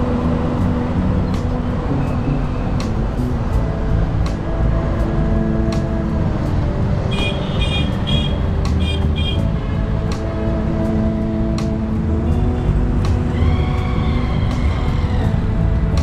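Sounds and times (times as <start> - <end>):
heavy vehicle engine running: 0.0 - 16.0
high-pitched horn toots: 7.1 - 9.6.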